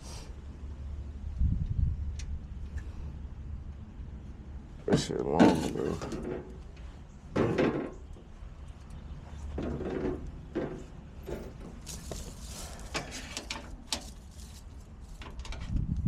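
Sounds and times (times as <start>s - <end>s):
clicks and knocks of tools: 12.7s - 14.2s.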